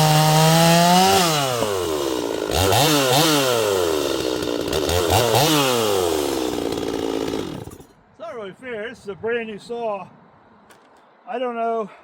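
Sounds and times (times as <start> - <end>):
chainsaw engine revving: 0.0 - 7.9.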